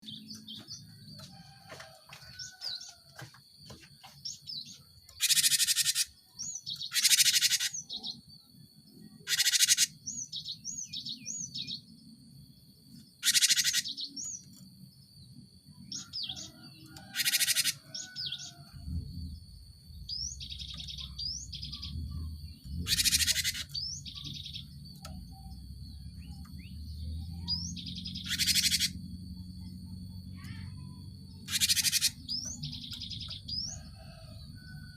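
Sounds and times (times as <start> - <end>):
bird harsh buzzy calls: 4.7 - 8.2, 9.1 - 10.5, 13.2 - 14.4, 16.0 - 18.8, 20.1 - 24.8, 27.4 - 29.2, 30.4 - 34.0
low hum: 18.5 - 34.6.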